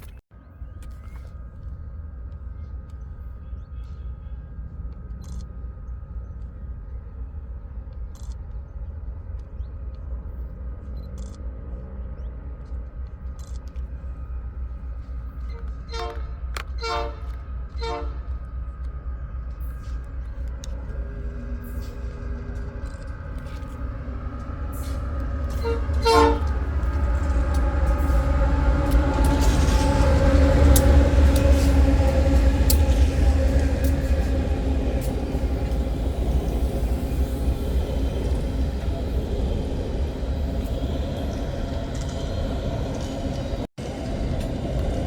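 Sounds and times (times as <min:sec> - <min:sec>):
diesel locomotive rumble: 0:10.0 - 0:45.0
train horn toot: 0:15.4 - 0:18.6, 0:21.6 - 0:36.0
wheels clicking over rails: 0:19.6 - 0:45.0.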